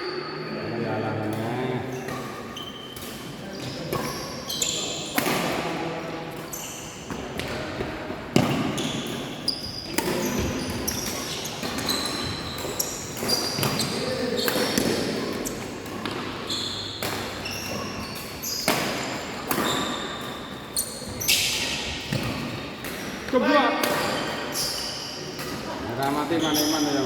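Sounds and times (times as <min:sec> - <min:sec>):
rackets hitting shuttlecock: 0:07.1 - 0:26.9.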